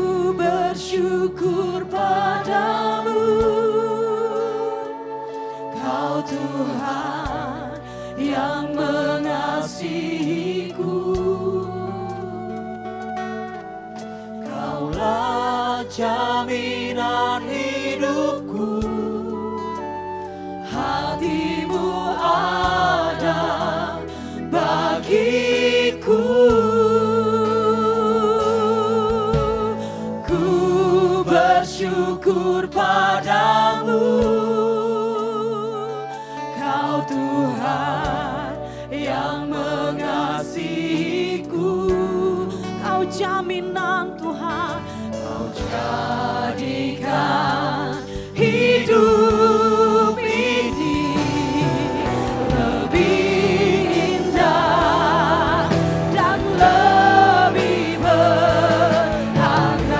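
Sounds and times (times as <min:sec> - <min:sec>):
voices singing together: 0:00.0 - 0:13.2, 0:14.0 - 0:43.3, 0:44.0 - 0:59.9
keyboard chords and bass: 0:38.1 - 0:59.9.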